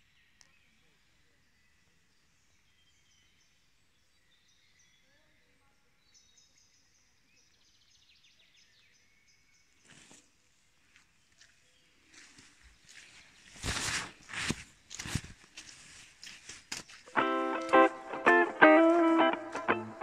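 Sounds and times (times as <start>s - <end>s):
scuffing noise: 12.1s - 20.0s.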